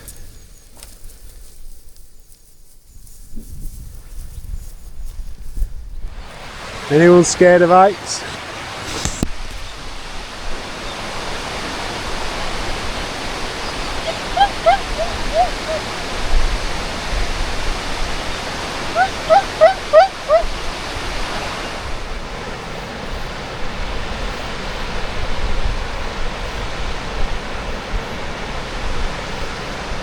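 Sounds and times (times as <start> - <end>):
waterfall rushing: 6.1 - 30.0
short high-pitched calls: 13.6 - 15.9, 19.0 - 20.5.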